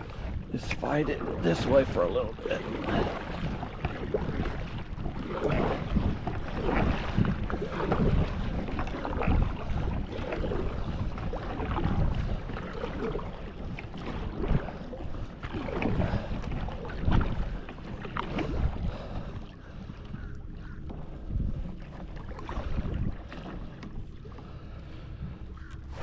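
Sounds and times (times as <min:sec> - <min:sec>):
paddle strokes splashing: 0:00.0 - 0:26.0
wind buffeting microphone: 0:00.0 - 0:26.0.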